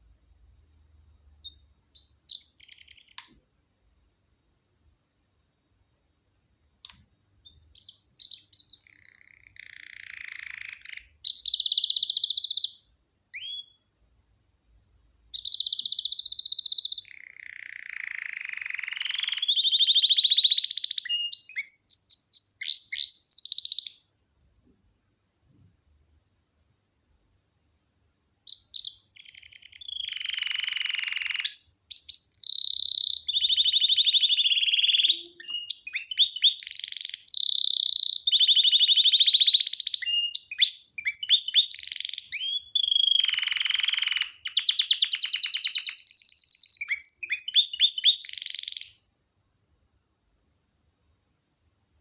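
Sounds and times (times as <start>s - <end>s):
canary singing trills: 1.4s - 3.4s, 7.4s - 13.9s, 15.3s - 24.1s, 28.4s - 49.1s.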